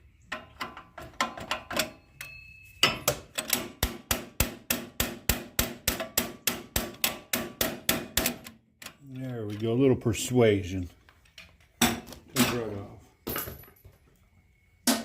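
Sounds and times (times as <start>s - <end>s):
metal-on-metal hammering: 0.3s - 8.5s.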